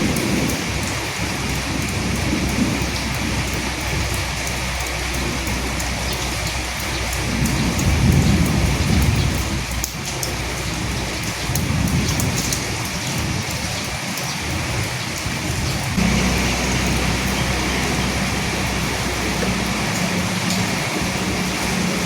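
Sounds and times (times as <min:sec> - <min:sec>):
rain drops pattering: 0:00.0 - 0:22.0
low rumble: 0:16.0 - 0:22.0.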